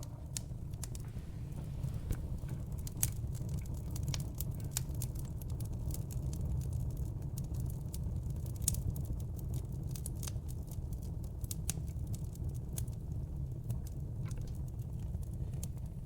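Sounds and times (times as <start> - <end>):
fire crackling and popping: 0.0 - 16.0
low rumble of flames: 0.0 - 16.0.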